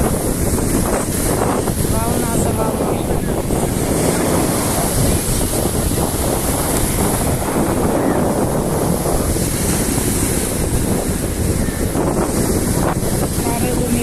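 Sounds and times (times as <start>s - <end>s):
waves breaking on shore: 0.0s - 14.0s
wind buffeting microphone: 0.0s - 14.0s.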